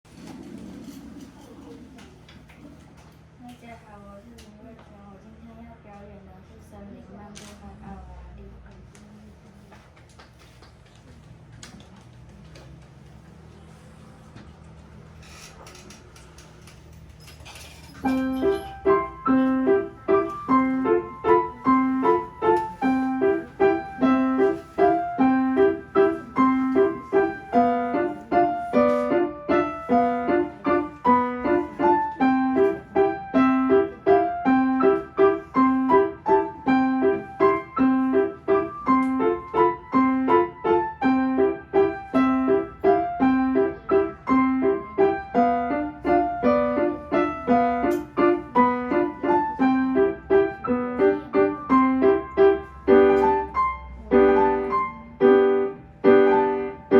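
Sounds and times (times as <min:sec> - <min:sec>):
solo piano piece: 0:18.0 - 0:56.9.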